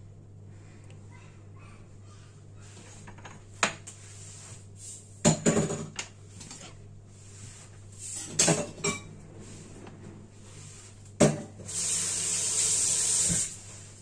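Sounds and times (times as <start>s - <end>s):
low steady hum: 0.0s - 11.6s
dishes and utensils clattering: 5.3s - 6.8s, 8.1s - 9.2s.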